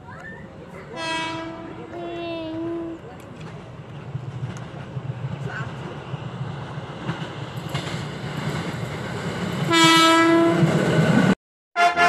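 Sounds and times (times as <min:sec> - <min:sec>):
train rumbling: 0:00.0 - 0:12.0
train horn: 0:01.0 - 0:01.8, 0:09.7 - 0:10.7, 0:11.8 - 0:12.0.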